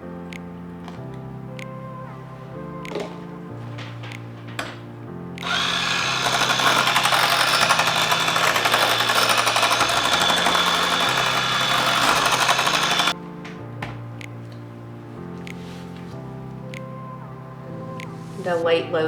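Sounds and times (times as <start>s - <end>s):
background music: 0.0s - 19.0s
electric mixer running: 5.4s - 13.2s.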